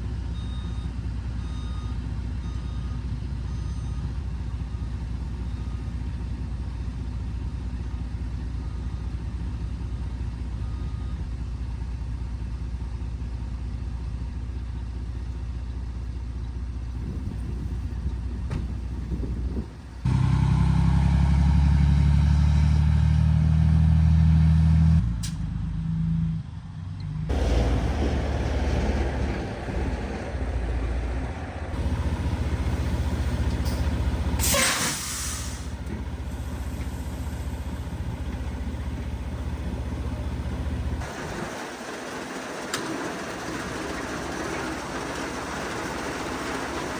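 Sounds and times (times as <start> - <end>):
farm machine engine running: 27.3 - 46.9.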